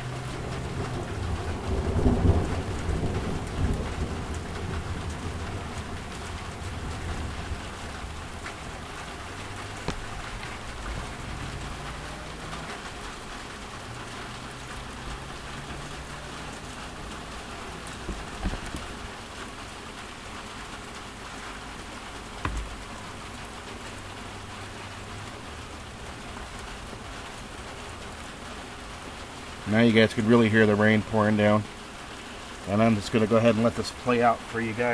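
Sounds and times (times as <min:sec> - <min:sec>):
heavy rain on a roof: 0:00.0 - 0:34.9
low thunder rumble: 0:00.3 - 0:08.4.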